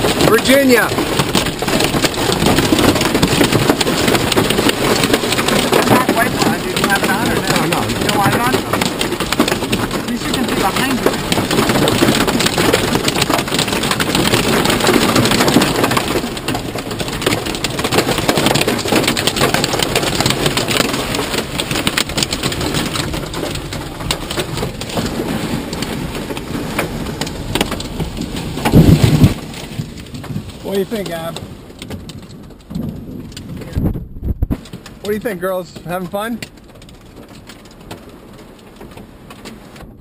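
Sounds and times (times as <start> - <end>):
rain drumming on car roof: 0.0 - 40.0
road and engine noise: 0.0 - 40.0.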